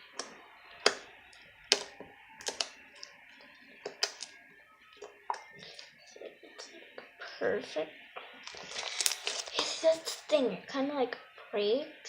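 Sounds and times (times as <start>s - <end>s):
slime squeezed clicking pops: 1.7s - 3.1s, 3.9s - 4.3s.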